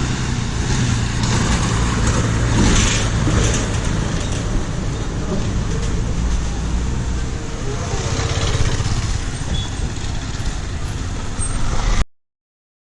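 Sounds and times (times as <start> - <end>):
heavy vehicle engine rumbling: 0.0 - 12.0
traffic noise: 0.0 - 12.1.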